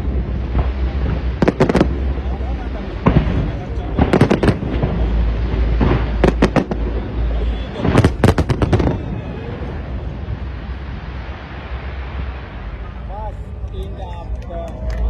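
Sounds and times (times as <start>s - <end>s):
fireworks banging: 0.0s - 13.0s.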